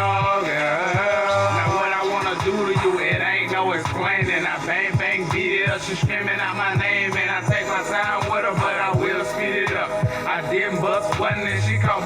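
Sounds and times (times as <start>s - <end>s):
rapping over a beat: 0.0s - 12.0s
deep kick drums: 1.0s - 4.4s, 5.0s - 7.6s.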